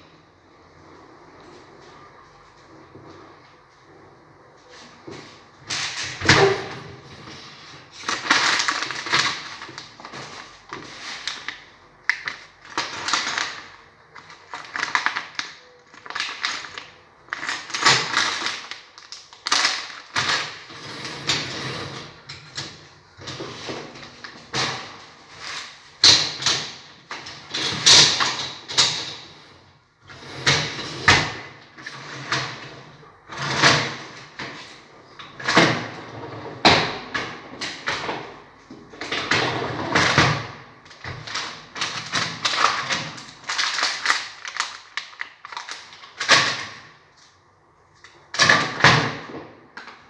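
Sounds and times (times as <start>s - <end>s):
sliding and scraping of parts: 19.5s - 36.7s.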